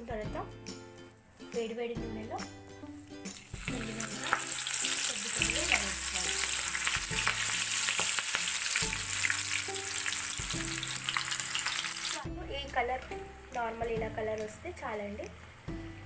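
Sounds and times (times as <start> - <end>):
food deep-frying in hot oil: 3.3 - 12.3.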